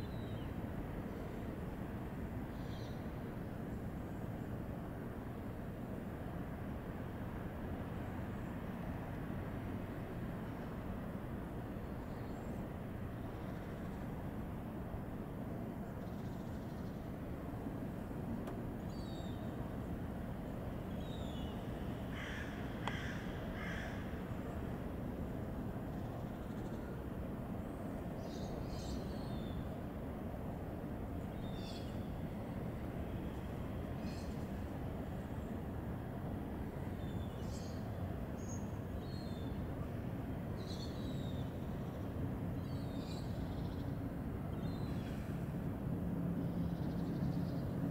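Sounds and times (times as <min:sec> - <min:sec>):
low background rumble: 0:00.0 - 0:47.9
harsh caw-like bird calls: 0:22.1 - 0:24.4.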